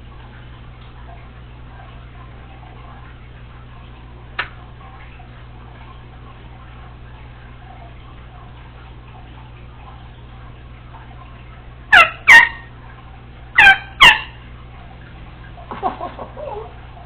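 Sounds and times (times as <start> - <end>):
parrot sharp calls: 11.9 - 12.7, 13.6 - 14.4.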